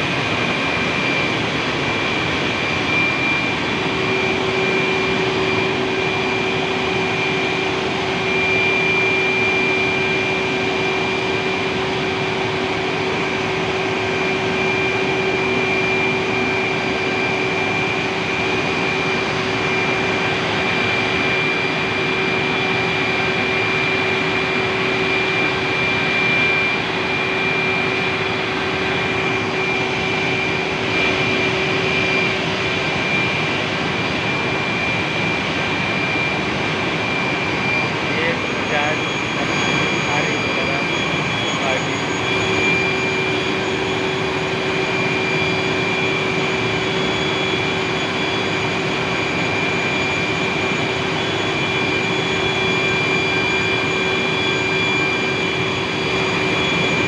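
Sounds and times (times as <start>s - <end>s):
high whine: 25.0s - 49.6s
steam turbine rushing noise: 35.7s - 51.4s.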